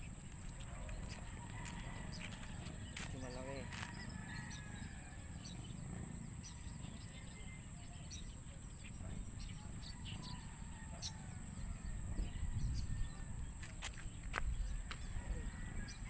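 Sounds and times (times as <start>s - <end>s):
small birds chirping: 0.0s - 16.0s
low wind rumble: 3.6s - 16.0s.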